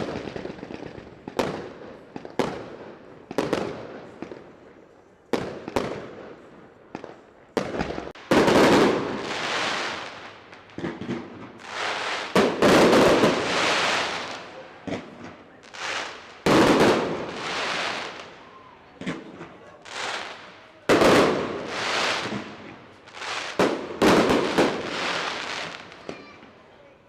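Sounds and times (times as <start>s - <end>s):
fireworks crackling and booming: 0.0s - 26.7s
firework bangs: 7.0s - 26.4s.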